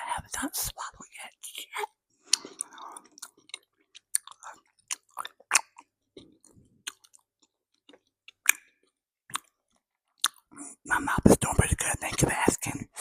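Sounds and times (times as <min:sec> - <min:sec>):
person chewing bread: 0:02.2 - 0:10.8.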